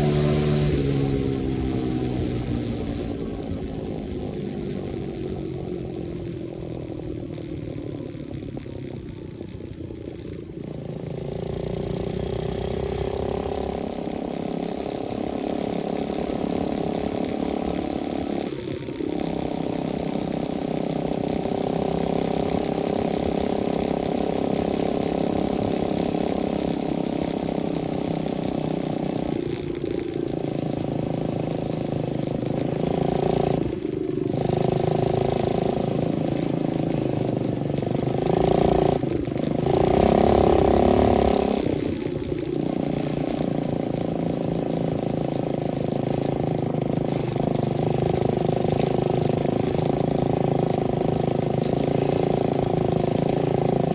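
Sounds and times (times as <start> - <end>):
dirt bike engine running: 0.0 - 53.9.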